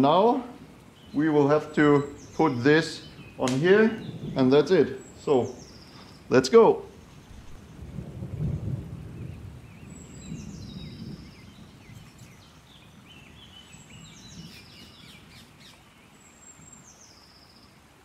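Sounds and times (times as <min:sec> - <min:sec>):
bird chirps: 0:01.0 - 0:06.3, 0:09.2 - 0:17.7
songbird whistled song: 0:09.2 - 0:17.8.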